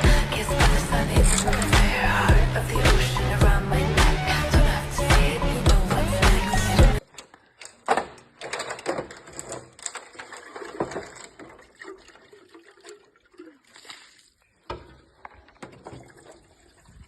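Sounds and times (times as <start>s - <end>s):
water splashing and sloshing: 8.5s - 17.0s.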